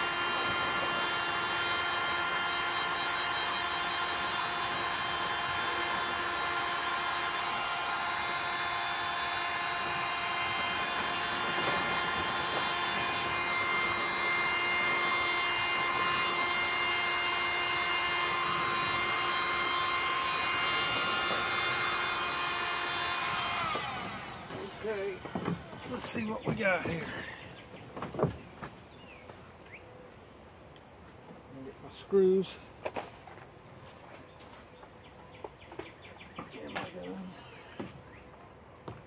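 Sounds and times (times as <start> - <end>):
heat gun motor whine: 0.0 - 27.5.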